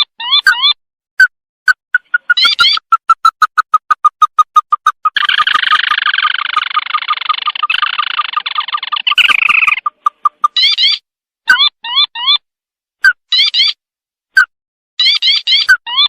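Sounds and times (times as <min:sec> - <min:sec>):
upswept bird notes: 0:01.9 - 0:11.0
chattering bird trill: 0:01.9 - 0:12.4, 0:15.0 - 0:16.0.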